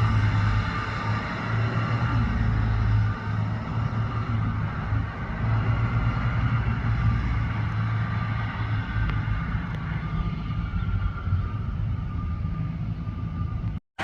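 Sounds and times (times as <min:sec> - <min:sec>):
diesel engine running: 0:00.0 - 0:13.8.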